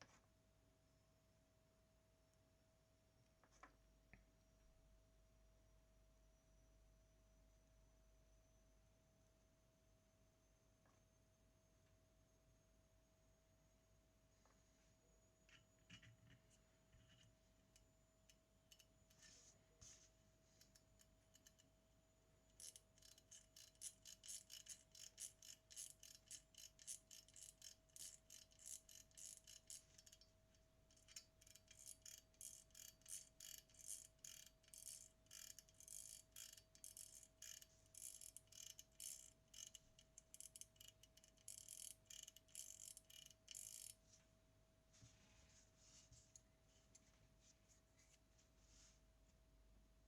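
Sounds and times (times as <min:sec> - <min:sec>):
faint steady hum: 0:00.0 - 0:50.0
quick mechanical ticking: 0:22.5 - 0:30.3, 0:30.9 - 0:44.0.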